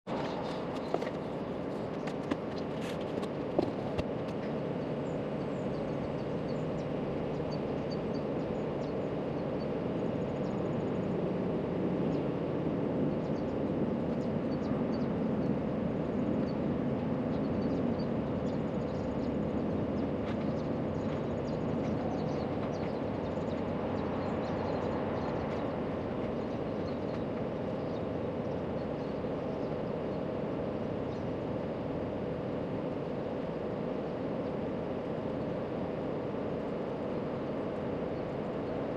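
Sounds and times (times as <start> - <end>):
low outdoor background rumble: 0.1 - 38.9.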